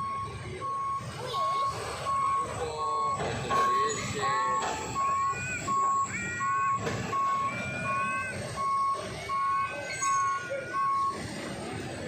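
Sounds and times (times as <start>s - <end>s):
electronic warning beeper: 0.0s - 11.3s.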